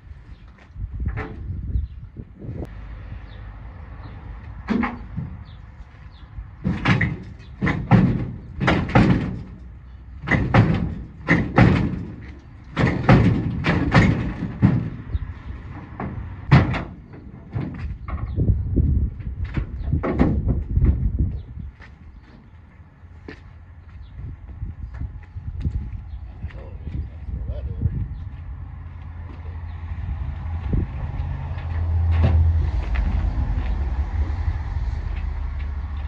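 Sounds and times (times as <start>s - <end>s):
hammer banging on steel: 6.6s - 15.0s.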